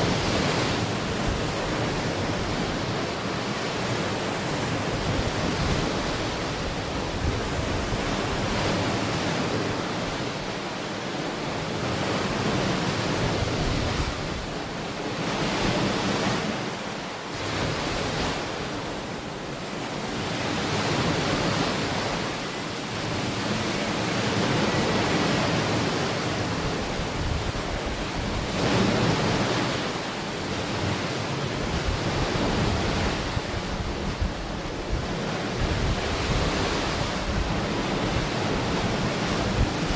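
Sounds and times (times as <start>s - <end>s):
ocean waves on beach: 0.0s - 39.9s
wind on microphone: 4.2s - 10.4s, 13.2s - 14.7s, 24.4s - 30.0s, 30.7s - 39.9s.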